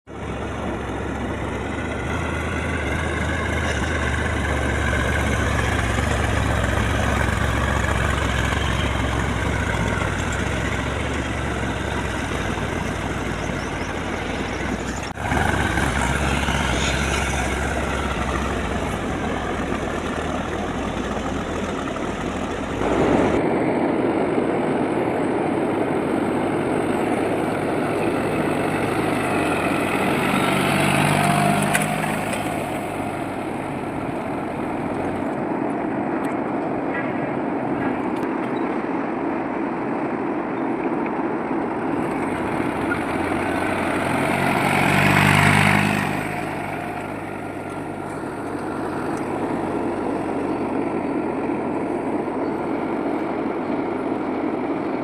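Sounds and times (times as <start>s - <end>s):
tractor diesel engine running: 0.0s - 36.7s, 41.6s - 55.0s.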